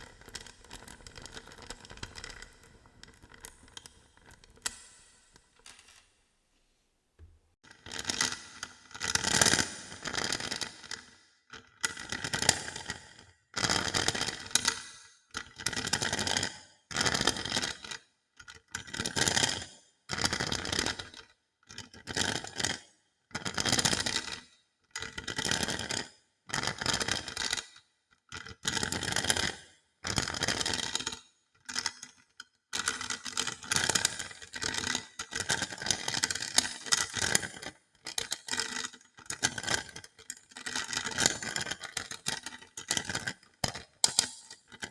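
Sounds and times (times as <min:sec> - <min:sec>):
balls rattling and scraping: 0:00.0 - 0:06.6.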